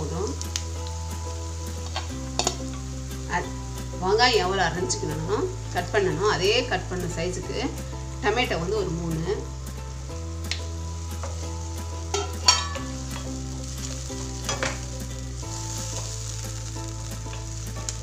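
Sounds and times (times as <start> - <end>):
vegetables sizzling in oil: 0.0 - 18.0
spatula scraping a pan: 12.1 - 14.8.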